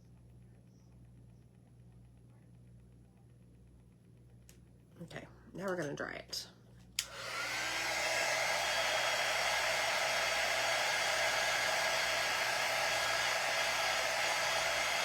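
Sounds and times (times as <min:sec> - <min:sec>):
hot-air dryer blowing: 0:07.0 - 0:15.0.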